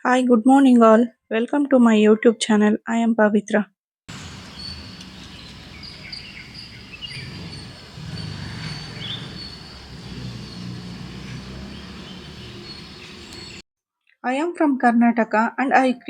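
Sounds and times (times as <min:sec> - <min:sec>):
small birds chirping: 0:04.1 - 0:13.6.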